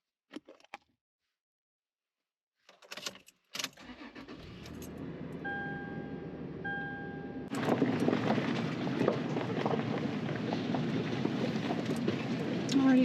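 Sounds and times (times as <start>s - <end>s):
car engine starting and idling: 3.6s - 13.0s.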